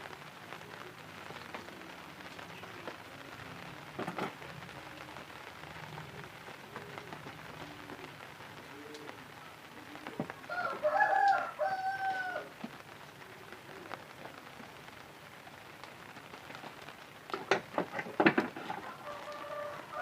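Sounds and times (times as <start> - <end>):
steady background hiss: 0.0 - 20.0
rooster crowing: 10.5 - 12.6, 18.8 - 20.0.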